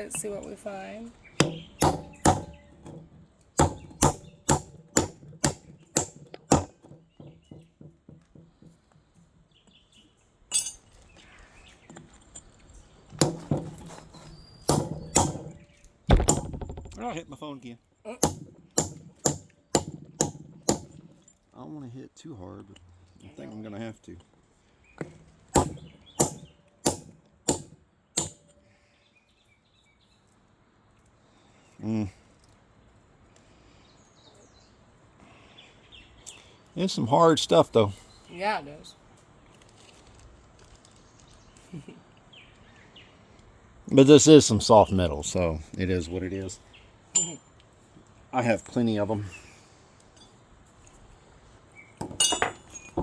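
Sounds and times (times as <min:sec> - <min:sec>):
metal spike striking quartz: 0:01.4 - 0:07.0, 0:10.5 - 0:11.0, 0:14.6 - 0:17.2, 0:18.2 - 0:21.3, 0:25.0 - 0:28.6, 0:47.2 - 0:47.5, 0:52.0 - 0:53.0.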